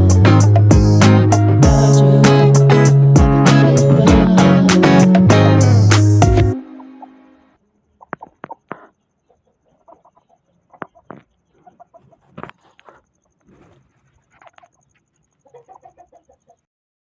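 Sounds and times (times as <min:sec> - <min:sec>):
birds calling: 0:06.6 - 0:16.6.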